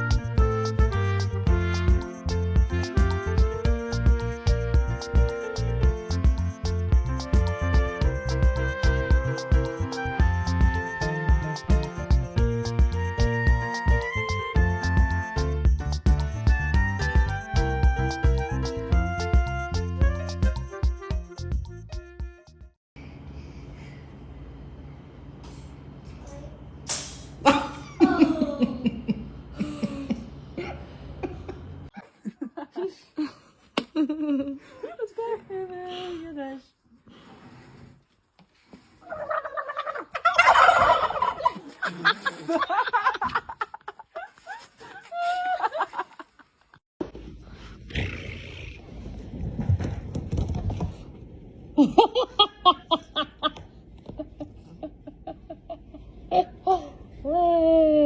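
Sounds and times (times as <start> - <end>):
steady background hum: 23.0 - 32.0
person chuckling and laughing: 27.4 - 35.9, 41.1 - 46.4, 51.8 - 57.4
person laughing: 27.5 - 35.5.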